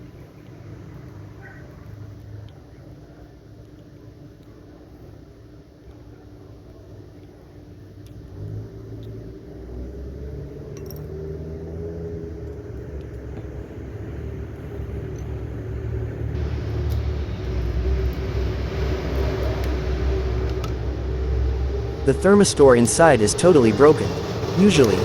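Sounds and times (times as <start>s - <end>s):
low mechanical rumble: 12.1s - 25.0s.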